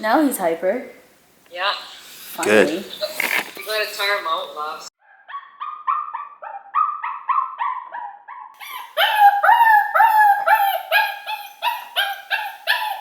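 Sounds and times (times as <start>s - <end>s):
puppy yelping: 5.0s - 13.0s.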